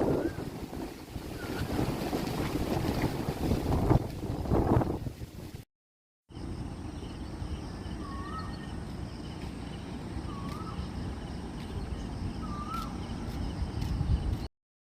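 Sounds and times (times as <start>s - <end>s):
bird whistling wavering note: 12.4s - 13.0s.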